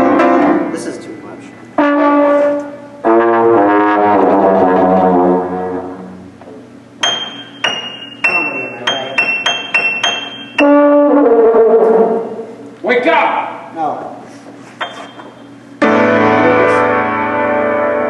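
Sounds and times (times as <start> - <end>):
loud brass notes: 1.8 - 6.4, 10.6 - 12.4.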